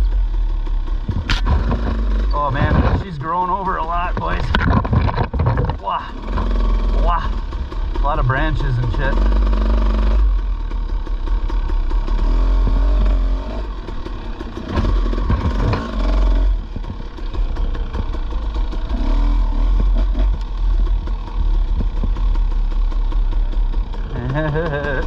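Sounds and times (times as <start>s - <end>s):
dirt bike engine revving: 0.9s - 25.0s
wind rumble on microphone: 1.0s - 3.1s, 4.1s - 5.9s
branches scraping against bike: 1.1s - 6.9s.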